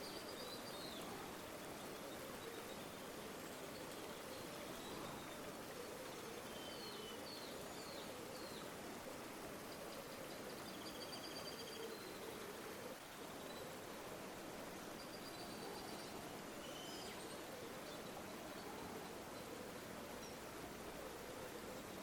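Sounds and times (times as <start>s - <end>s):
faint bird chirps: 0.0s - 8.8s, 9.6s - 13.8s, 14.9s - 22.0s
river water flowing: 0.0s - 22.0s.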